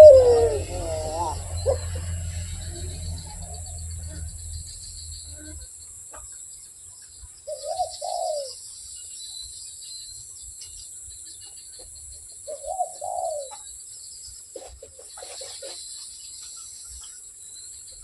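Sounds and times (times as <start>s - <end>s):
dove cooing: 0.0s - 4.6s, 7.5s - 8.5s, 12.5s - 13.6s.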